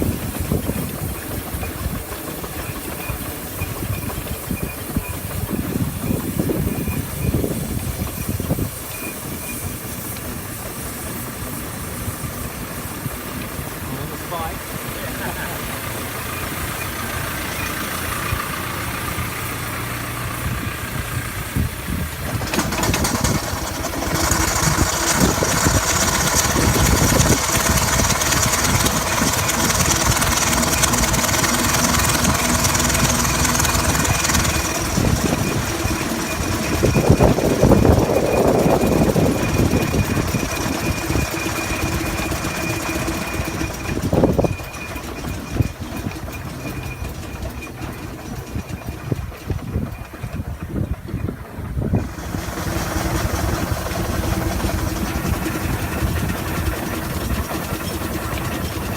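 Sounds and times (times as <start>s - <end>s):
steam hissing: 0.0s - 50.1s, 51.6s - 58.9s
steam engine rhythmic beat: 0.0s - 50.5s, 51.4s - 58.9s.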